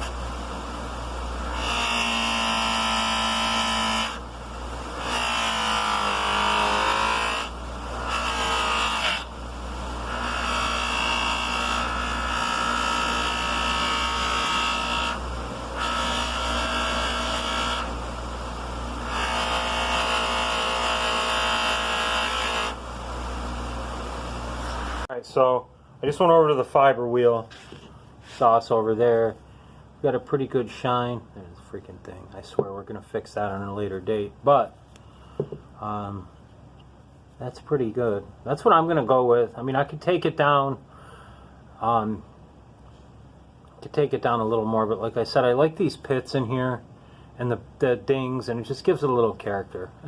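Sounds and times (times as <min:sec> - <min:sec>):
loud whine of metal polishing: 0:00.0 - 0:25.1.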